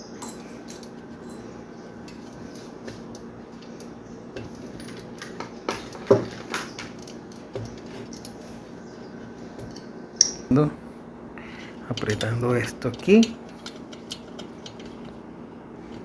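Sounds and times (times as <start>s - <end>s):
metal parts clicking and clinking: 0.1s - 8.4s, 11.9s - 15.1s.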